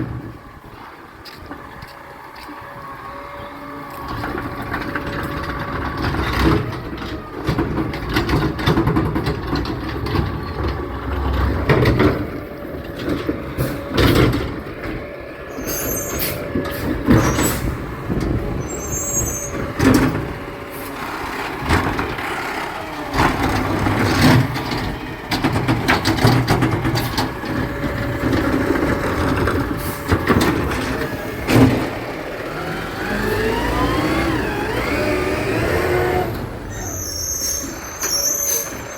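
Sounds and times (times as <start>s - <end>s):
truck engine rumbling: 0.0s - 38.9s
clanks and knocks: 4.1s - 15.1s, 21.3s - 33.6s
high squeals: 15.5s - 19.9s, 32.1s - 38.9s.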